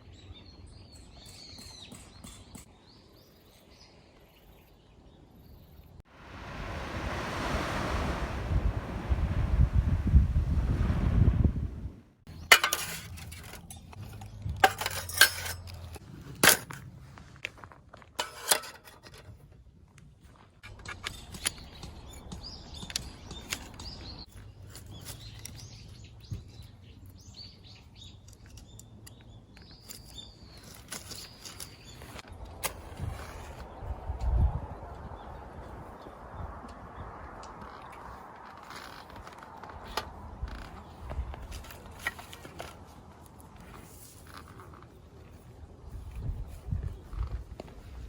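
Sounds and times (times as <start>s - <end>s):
metallic clinks and knocks: 12.5s - 16.8s.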